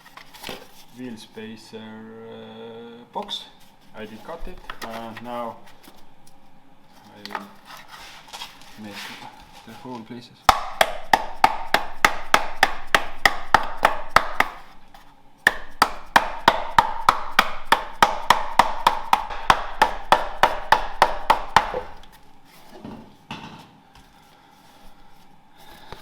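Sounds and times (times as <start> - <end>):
rapid hammer taps: 10.5 - 22.2.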